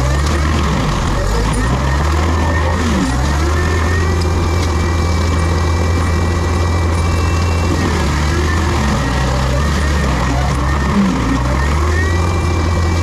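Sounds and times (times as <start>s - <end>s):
diesel machine humming: 0.0s - 13.0s
thin high whine: 6.9s - 10.9s.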